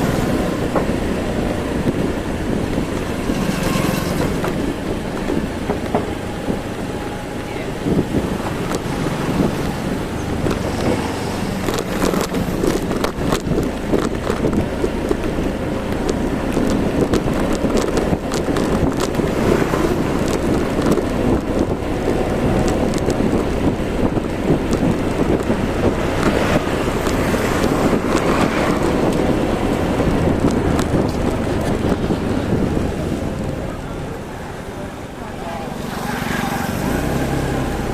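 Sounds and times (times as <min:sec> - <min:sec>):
motorbike engine: 0:00.0 - 0:37.9
road noise: 0:00.0 - 0:37.9
wind buffeting microphone: 0:00.0 - 0:37.9.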